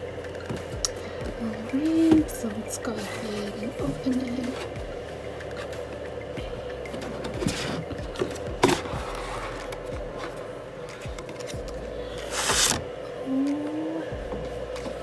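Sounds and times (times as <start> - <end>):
space heater hiss: 0.0 - 15.0
box packaging being opened: 12.2 - 12.8.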